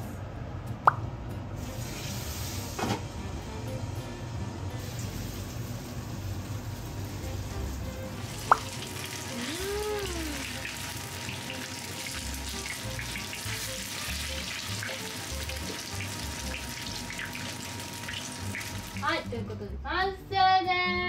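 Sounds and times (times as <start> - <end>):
tofu sizzling in frying pan: 8.2 - 19.3.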